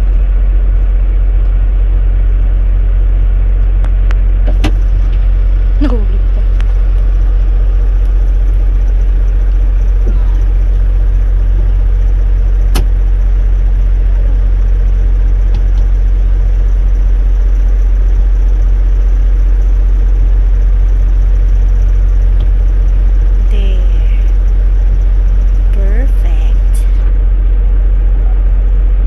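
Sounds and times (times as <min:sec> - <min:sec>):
truck engine rumble: 0:00.0 - 0:29.0
sharp click: 0:12.7 - 0:12.9.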